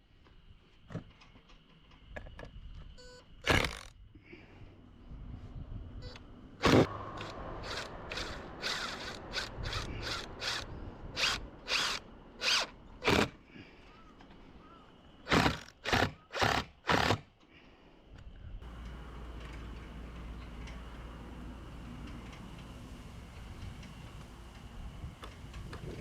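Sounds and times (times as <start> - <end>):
drill-driver trigger bursts: 3.4 - 3.9, 6.6 - 13.4, 15.3 - 17.2.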